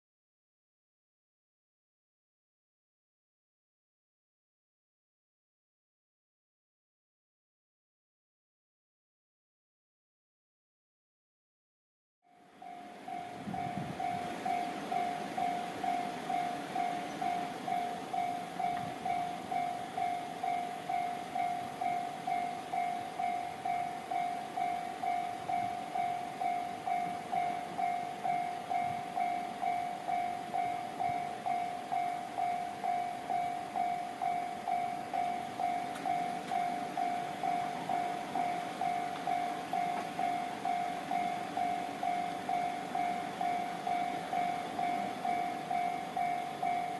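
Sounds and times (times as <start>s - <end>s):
level crossing warning bell: 12.3s - 46.9s.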